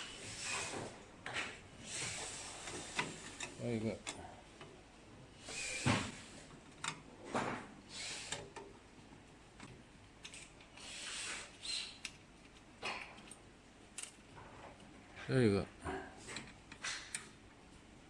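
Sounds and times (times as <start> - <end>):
tools and parts clicking and rattling: 12.0 - 14.9.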